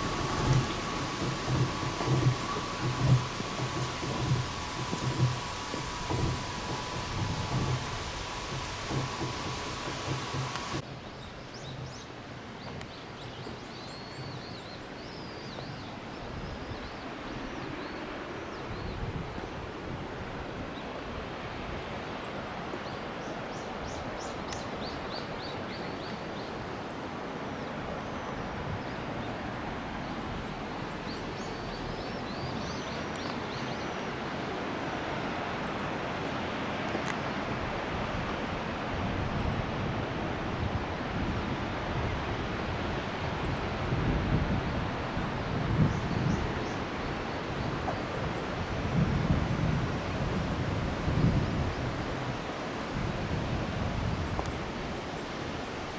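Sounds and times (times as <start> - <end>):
waterfall rushing water: 0.0 - 10.8.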